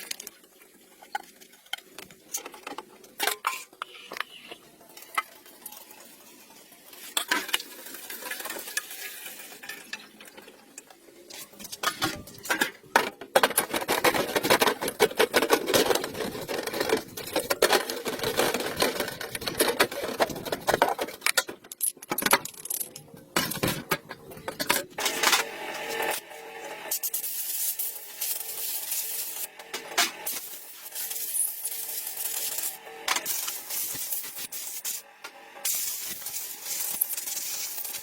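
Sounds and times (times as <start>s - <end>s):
small hard objects clattering: 11.4s - 25.3s.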